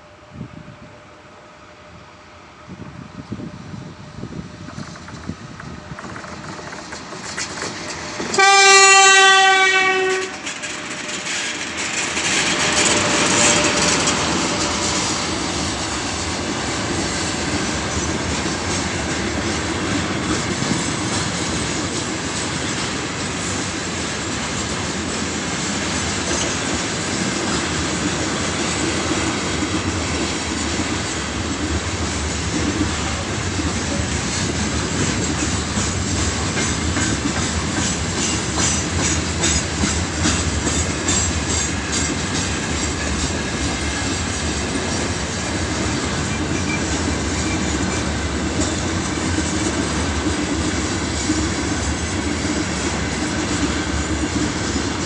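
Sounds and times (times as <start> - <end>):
freight train rumbling past: 0.0 - 55.0
wheel clicks over rail joints: 4.7 - 8.4.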